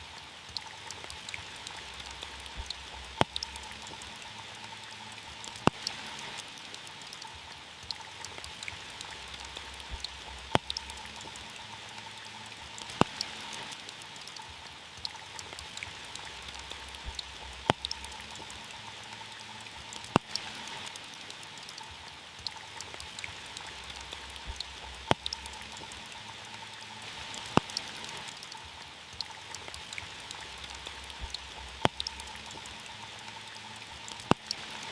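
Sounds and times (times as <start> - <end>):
rain on a car: 0.0 - 34.9
big raindrop striking: 27.1 - 33.0.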